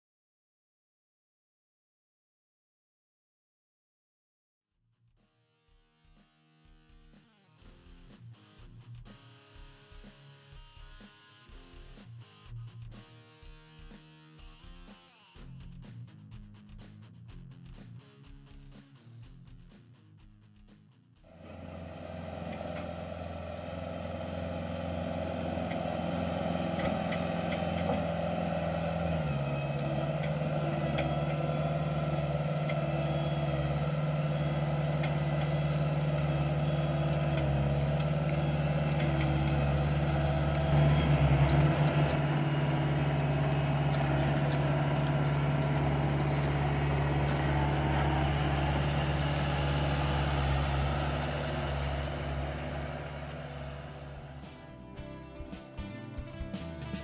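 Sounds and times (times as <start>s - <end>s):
skid steer engine running: 21.3s - 57.0s.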